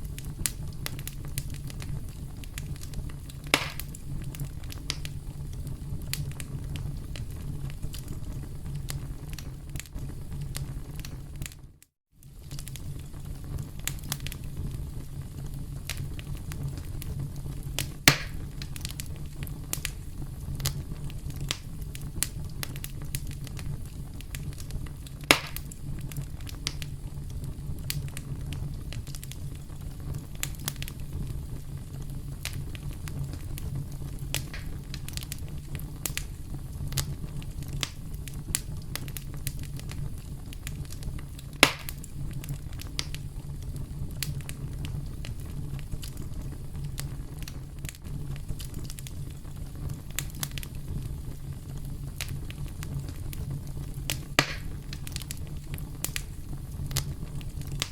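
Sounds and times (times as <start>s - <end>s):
sharp loud pops from fire: 0.0s - 11.6s, 15.8s - 20.0s, 20.6s - 31.4s, 32.3s - 43.3s, 52.1s - 57.9s
low rumble of flames: 0.0s - 57.9s
wood crackling and snapping: 0.1s - 14.5s, 15.8s - 20.0s, 20.6s - 31.1s, 31.8s - 57.9s.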